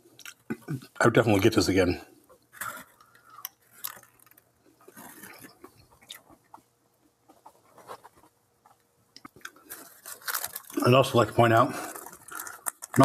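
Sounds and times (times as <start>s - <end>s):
person chewing: 2.5s - 6.6s, 9.2s - 10.8s, 11.9s - 13.0s.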